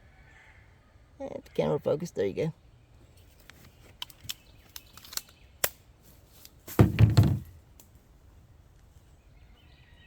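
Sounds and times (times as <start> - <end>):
pistol handling clicks: 4.0 - 5.8
low thump: 6.8 - 7.5.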